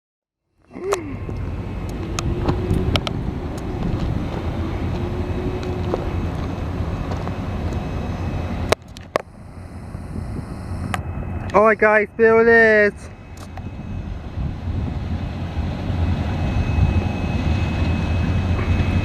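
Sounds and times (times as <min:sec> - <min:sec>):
low vehicle rumble: 0:00.5 - 0:19.0
wind on microphone: 0:01.3 - 0:08.7, 0:09.4 - 0:11.5, 0:13.1 - 0:19.0.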